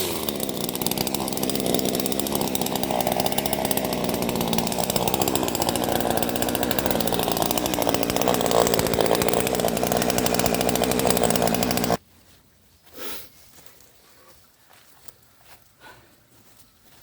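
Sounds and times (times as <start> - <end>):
chainsaw cutting at high revs: 0.0 - 12.0.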